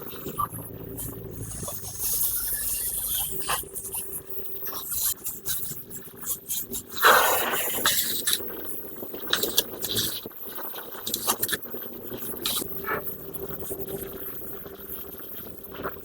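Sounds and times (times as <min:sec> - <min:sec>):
irregular scraping: 0:12.2 - 0:12.6.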